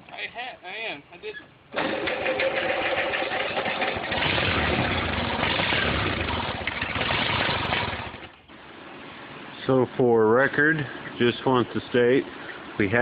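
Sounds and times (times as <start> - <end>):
tractor engine running: 1.7 - 9.4.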